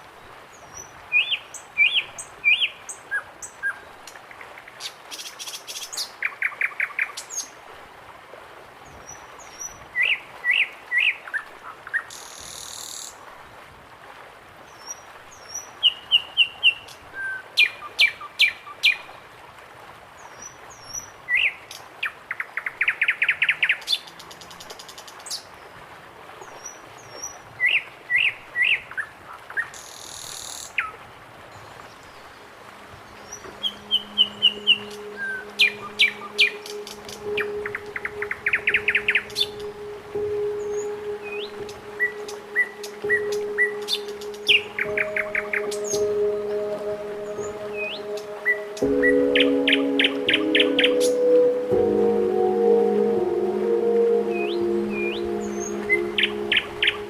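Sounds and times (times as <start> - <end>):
faint background hiss: 0.0 - 57.0
birds chirping and trilling: 33.0 - 51.7.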